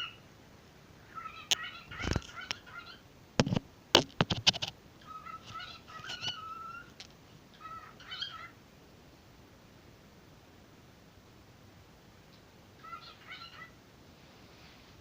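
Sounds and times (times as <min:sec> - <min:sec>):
bird warbling chirps: 0:01.1 - 0:03.0, 0:05.0 - 0:06.9, 0:07.5 - 0:08.6, 0:12.8 - 0:13.8.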